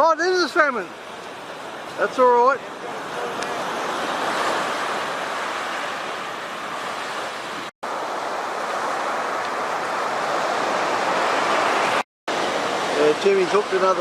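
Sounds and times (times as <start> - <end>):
ocean surf on a beach: 0.0 - 14.0.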